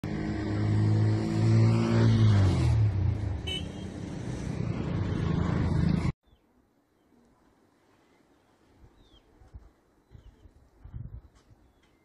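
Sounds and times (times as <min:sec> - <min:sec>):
road traffic noise: 0:00.0 - 0:06.2.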